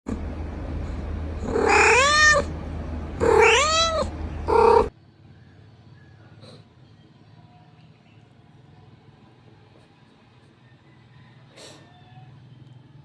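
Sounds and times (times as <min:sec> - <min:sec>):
cat meowing: 0:01.5 - 0:02.5, 0:03.2 - 0:04.9.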